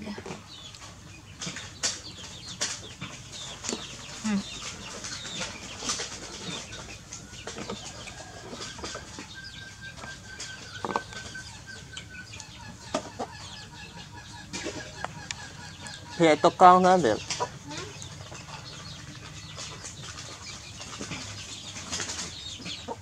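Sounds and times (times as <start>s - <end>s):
bird chirps: 0.4s - 23.0s
fowl clucking: 5.8s - 18.7s.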